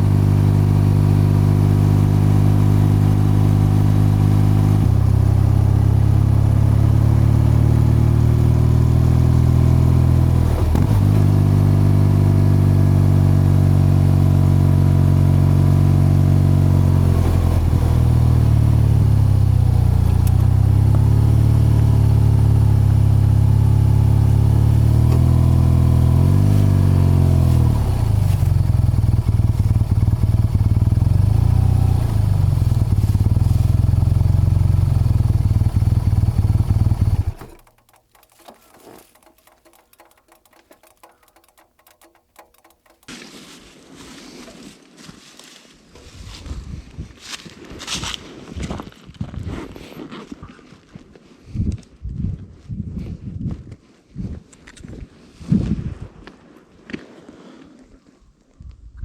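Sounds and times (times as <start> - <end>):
motorcycle engine and exhaust cruising: 0.0 - 43.1.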